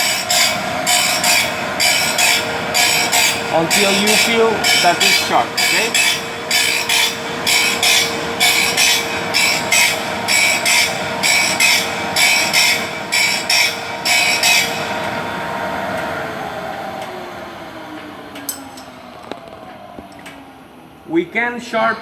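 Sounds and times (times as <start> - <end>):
machine grinding saw teeth: 0.0 - 15.1
motor humming: 0.0 - 21.6.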